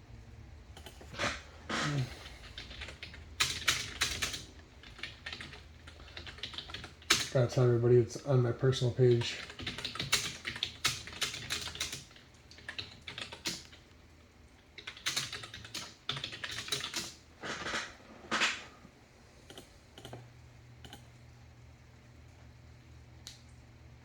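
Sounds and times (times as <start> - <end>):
typing on a computer keyboard: 0.8 - 1.2, 1.9 - 7.4, 9.2 - 18.6, 19.5 - 21.1.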